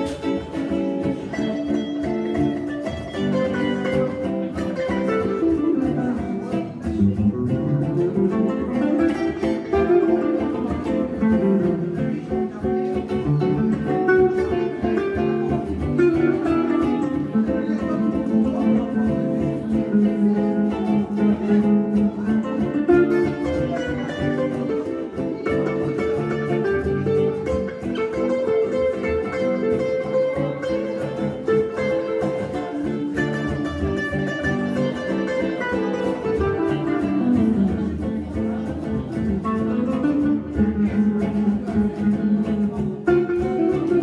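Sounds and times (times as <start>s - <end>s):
electric guitars playing swing: 0.0s - 44.0s.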